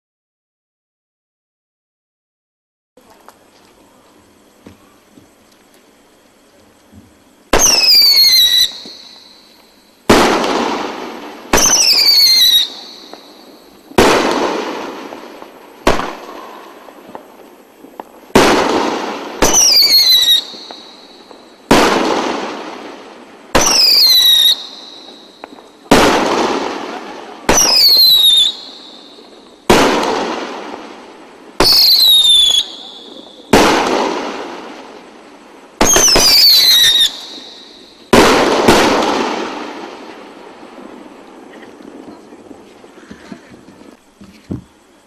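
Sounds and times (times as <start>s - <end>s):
firework bangs: 7.0s - 45.0s
firework whistles falling in pitch: 7.5s - 17.2s, 18.3s - 22.7s, 23.5s - 30.9s, 31.5s - 34.6s, 35.8s - 40.1s.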